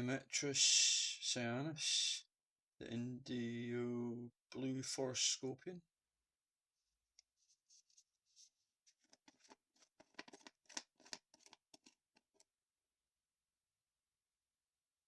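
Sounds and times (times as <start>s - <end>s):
packaging rustling by hand: 7.8s - 12.4s.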